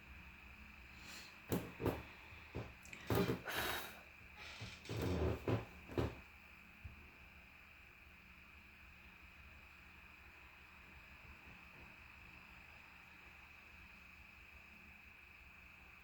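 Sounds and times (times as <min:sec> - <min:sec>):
objects knocking on hard surface: 0:01.5 - 0:03.6.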